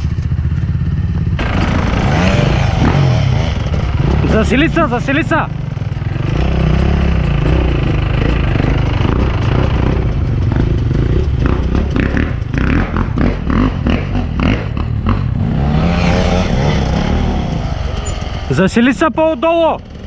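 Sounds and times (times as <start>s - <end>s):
dirt bike engine running: 0.0s - 20.0s
knocks and clatter: 5.6s - 18.5s.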